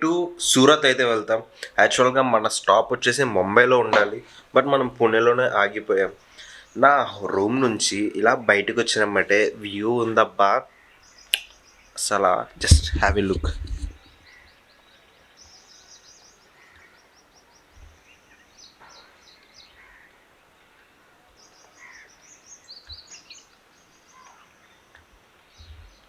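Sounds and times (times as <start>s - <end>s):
small birds chirping: 3.1s - 26.0s
lower bird calls: 10.7s - 26.0s.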